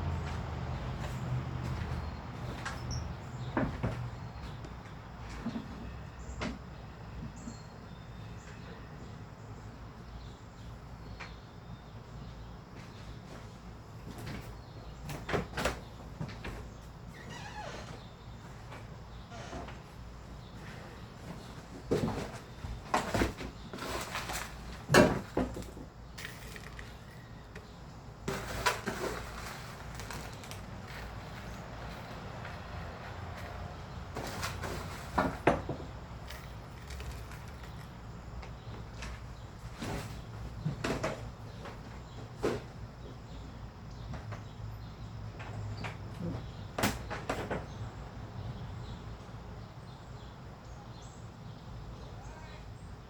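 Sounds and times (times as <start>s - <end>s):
birds tapping and clicking: 12.2s - 48.6s
rustles: 15.2s - 42.9s.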